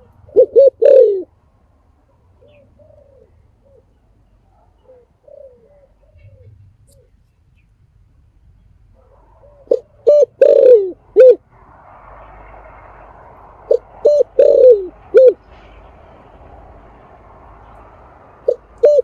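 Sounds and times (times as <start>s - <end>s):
dove cooing: 0.0s - 1.4s, 2.1s - 7.2s, 9.0s - 11.4s, 13.7s - 15.4s, 18.4s - 19.0s.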